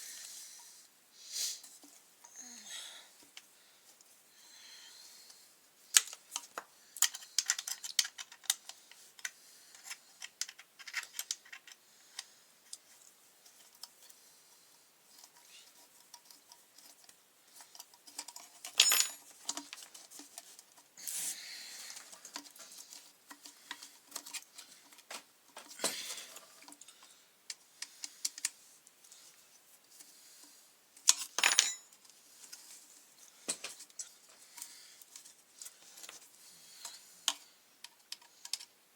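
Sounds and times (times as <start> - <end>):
small parts and tools clinking: 5.9 - 11.8, 16.1 - 20.4, 31.0 - 32.1.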